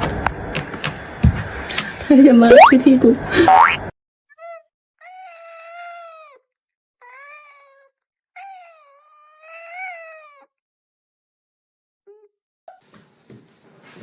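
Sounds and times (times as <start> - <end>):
cat meowing: 4.3 - 6.4, 7.0 - 10.5.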